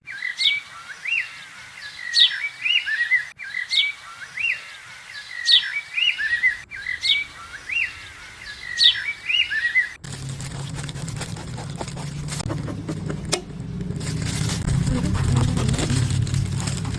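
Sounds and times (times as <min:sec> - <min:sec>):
birds chirping and whistling: 0:00.0 - 0:10.0.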